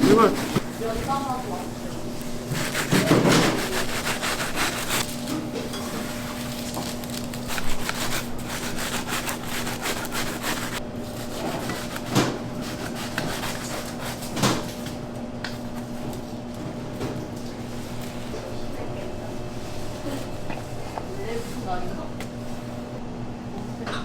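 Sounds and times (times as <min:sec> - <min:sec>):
steady machine hum: 0:00.0 - 0:14.2
kitchen knocks and clatters: 0:02.6 - 0:04.2, 0:14.2 - 0:14.9.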